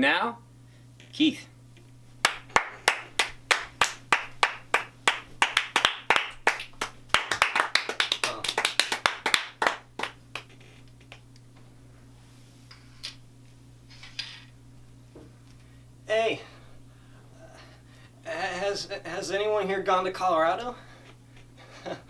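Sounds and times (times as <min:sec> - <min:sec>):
people clapping: 0:02.2 - 0:10.8.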